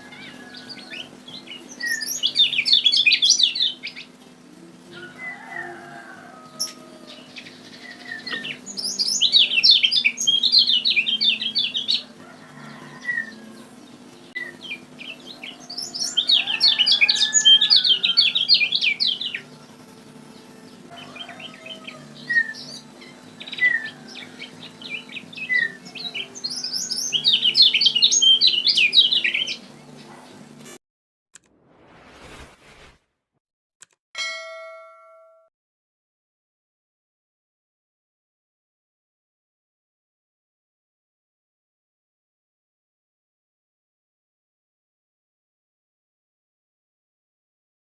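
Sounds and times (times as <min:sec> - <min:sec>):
bird singing high chirps: 0:00.1 - 0:04.1, 0:06.6 - 0:12.1, 0:13.0 - 0:19.6, 0:20.9 - 0:29.6
steady low hum: 0:06.8 - 0:30.8.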